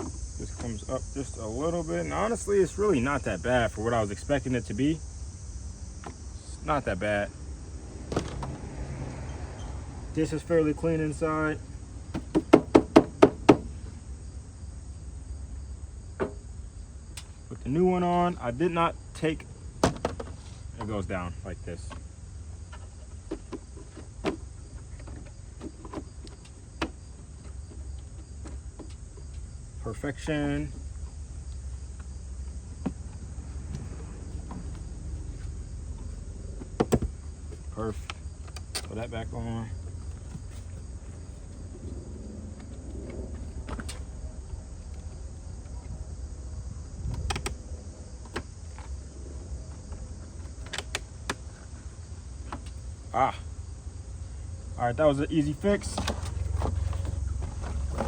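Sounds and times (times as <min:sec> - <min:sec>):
high insect buzz: 0:00.0 - 0:58.0
steady low rumble: 0:28.0 - 0:58.0.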